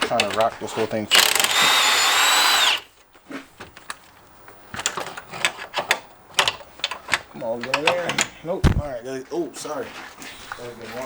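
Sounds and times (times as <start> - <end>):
tools clicking and knocking on metal: 0.0 - 1.8, 4.7 - 8.8
electric ratchet whining: 1.1 - 2.9.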